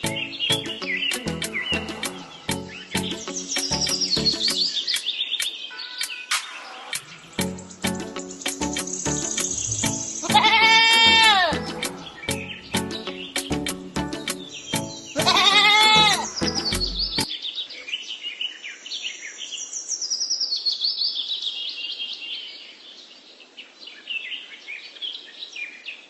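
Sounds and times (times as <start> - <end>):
music: 0.0 - 4.8, 6.3 - 17.3
birds chirping: 0.0 - 22.2
loud wavering bleat: 1.7 - 2.5, 10.2 - 12.1, 15.2 - 16.3.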